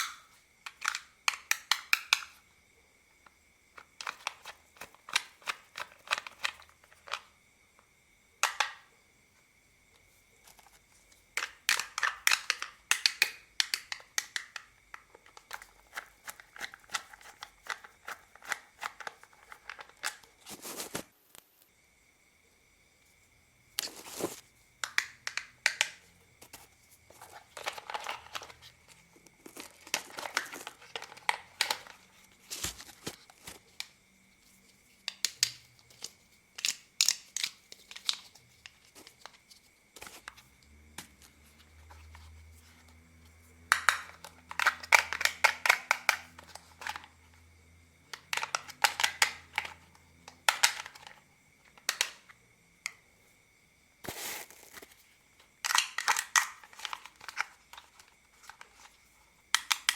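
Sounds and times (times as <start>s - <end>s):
plastic clicking and crackling: 27.1s - 33.9s, 43.7s - 47.2s, 48.1s - 52.3s, 55.6s - 59.9s.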